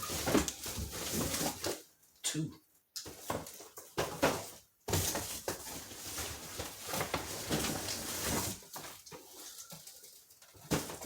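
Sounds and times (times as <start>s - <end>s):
packaging scuffs: 3.3s - 9.7s
packaging crinkling: 5.0s - 11.0s.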